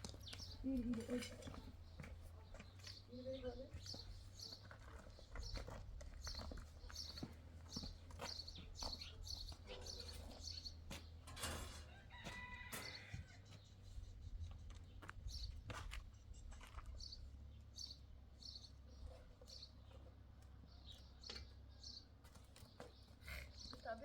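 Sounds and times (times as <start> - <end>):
rooster crowing: 11.8 - 13.5.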